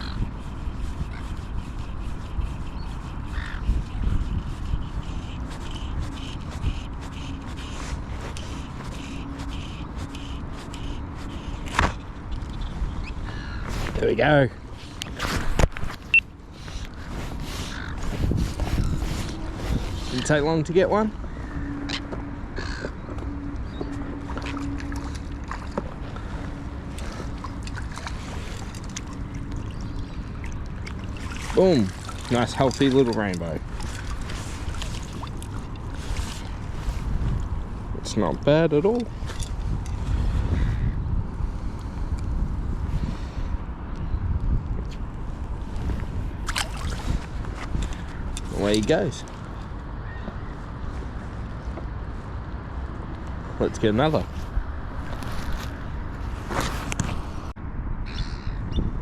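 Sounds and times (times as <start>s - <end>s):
water lapping and splashing: 0.0s - 40.9s, 45.0s - 57.5s
wind rumble on microphone: 0.0s - 59.0s
bird cawing: 3.3s - 3.6s, 13.0s - 13.7s, 16.1s - 18.1s, 21.2s - 24.0s, 49.6s - 50.6s, 58.1s - 58.6s.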